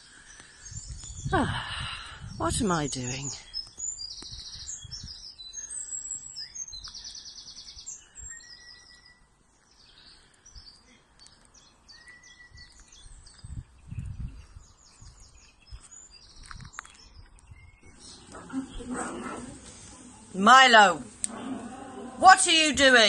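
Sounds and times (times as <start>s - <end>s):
songbirds singing and chirping: 0.0s - 23.0s
faint outdoor hiss: 17.8s - 23.0s.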